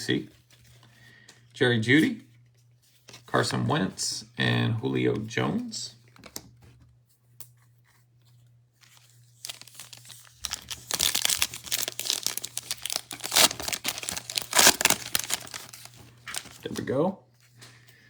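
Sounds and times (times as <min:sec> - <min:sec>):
wrapper tearing and crinkling: 0:08.9 - 0:16.8.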